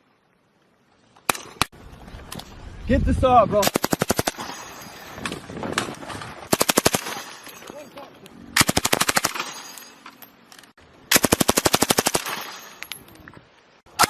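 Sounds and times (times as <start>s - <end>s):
machine gun automatic fire: 3.6s - 4.5s, 6.5s - 7.3s, 8.6s - 9.5s, 11.1s - 12.6s.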